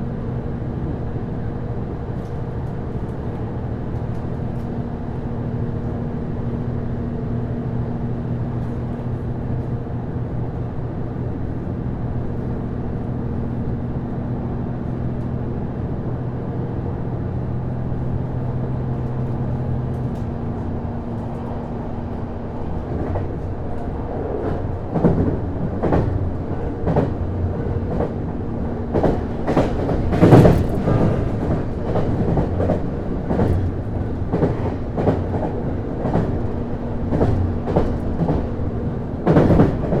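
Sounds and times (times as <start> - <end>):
railcar drive low drone: 0.0 - 40.0
wheels clacking over rail joints: 18.9 - 40.0.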